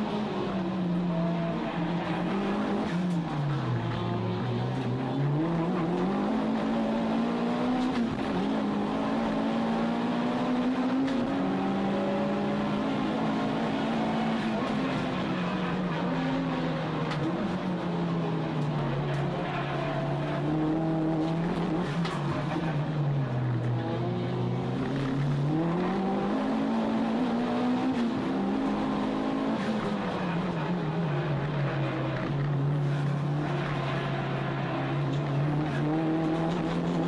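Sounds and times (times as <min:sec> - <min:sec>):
race car engine revving: 0:00.0 - 0:37.0.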